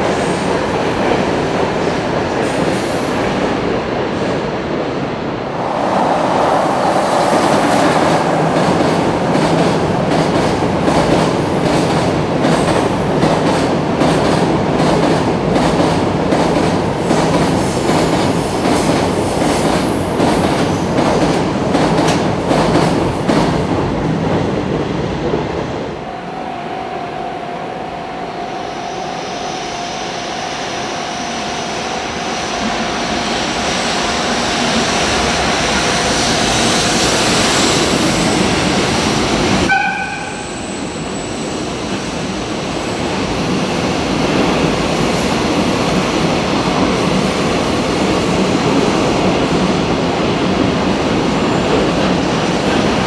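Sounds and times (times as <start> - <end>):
freight train rumbling past: 0.0 - 53.0
steady tone: 5.1 - 10.1.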